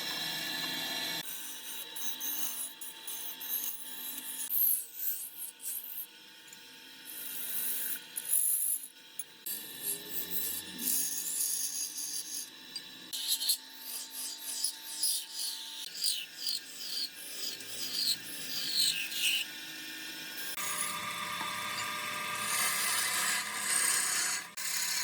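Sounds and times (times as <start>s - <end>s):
lathe tool scraping wood: 20.4s - 25.0s.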